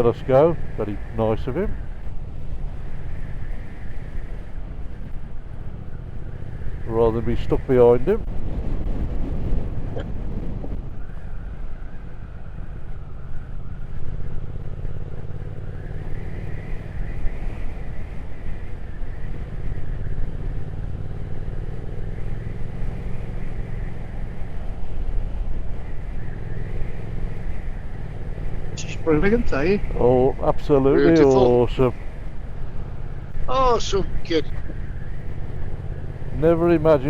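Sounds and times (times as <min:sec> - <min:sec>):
motorcycle engine running: 0:12.0 - 0:30.2.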